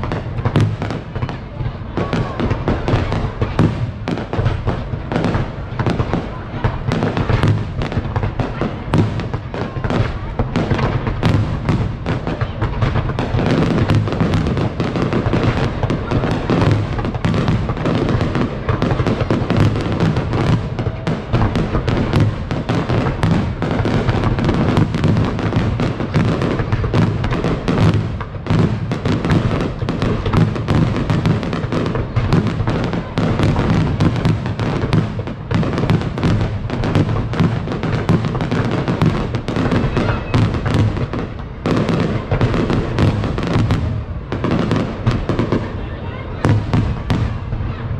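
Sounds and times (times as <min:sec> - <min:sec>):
fireworks bangs and crackles: 0:00.0 - 0:47.9.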